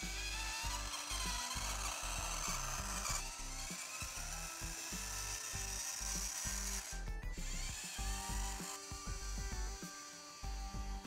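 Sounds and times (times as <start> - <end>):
upbeat music with pulsing bass: 7.0 - 9.8, 10.4 - 11.0.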